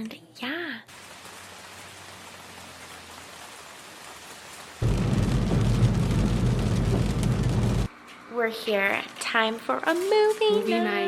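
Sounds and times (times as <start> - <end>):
steady rain falling: 0.9 - 7.9
loud rush with deep rumble: 4.8 - 7.9.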